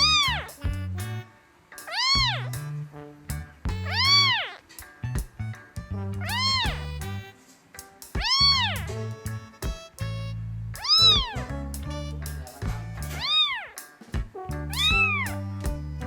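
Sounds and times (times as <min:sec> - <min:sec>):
cat meowing: 0:00.0 - 0:00.5, 0:01.9 - 0:02.4, 0:03.9 - 0:04.6, 0:06.3 - 0:06.9, 0:08.2 - 0:08.9, 0:10.8 - 0:11.4, 0:13.2 - 0:13.8.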